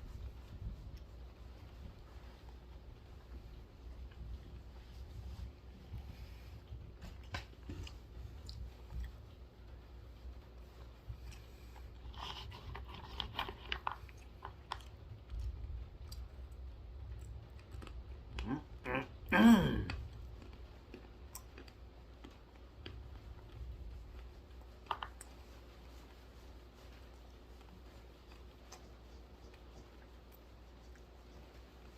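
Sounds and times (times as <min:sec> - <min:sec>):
crunching and chewing almonds: 0:11.2 - 0:31.9
short vocal sound: 0:18.4 - 0:20.0.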